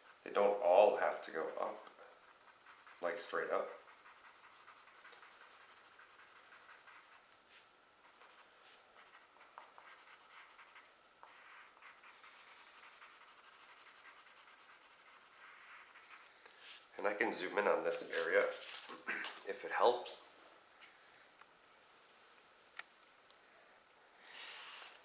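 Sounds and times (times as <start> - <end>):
pencil scratching on paper: 1.1 - 7.2, 8.0 - 16.2.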